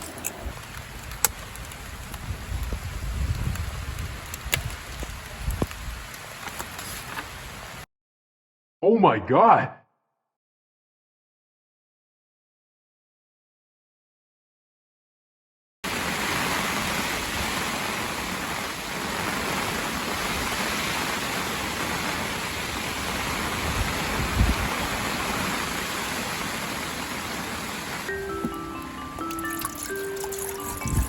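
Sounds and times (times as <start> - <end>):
heavy rain pouring: 0.0 - 7.8, 15.8 - 31.0
chiming mallet percussion music: 28.1 - 31.0.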